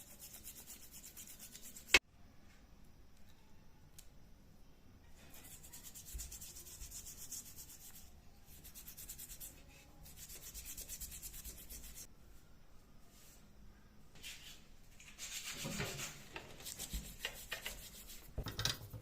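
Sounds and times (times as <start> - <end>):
hand sanding metal: 0.0 - 2.0, 5.3 - 12.1, 15.1 - 18.4.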